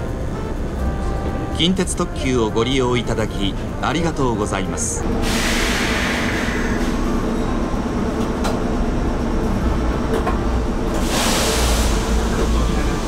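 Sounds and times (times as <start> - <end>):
train equipment humming: 0.0 - 13.0
air hissing: 5.2 - 7.2, 11.0 - 12.7.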